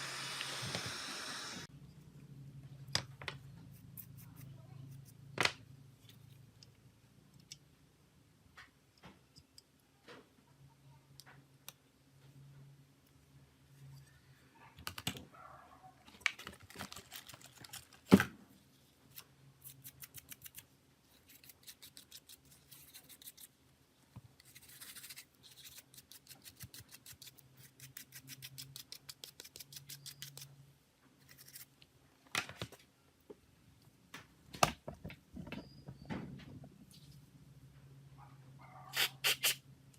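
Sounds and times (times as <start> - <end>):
quick scratching strokes: 38.9 - 39.6.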